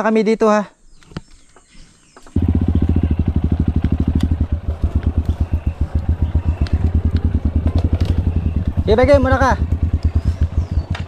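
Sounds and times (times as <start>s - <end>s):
motorcycle engine idling: 2.2s - 11.0s.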